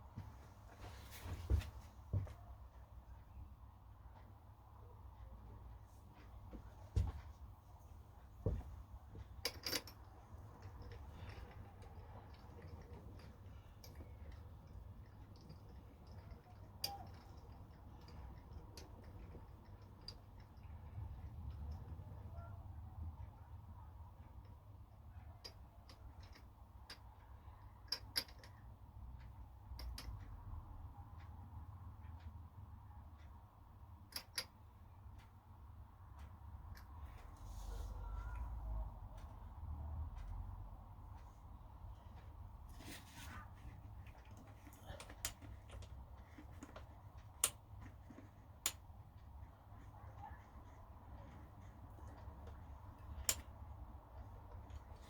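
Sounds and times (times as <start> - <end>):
low steady hum: 0.0 - 55.0
light clicks and taps: 23.1 - 55.0.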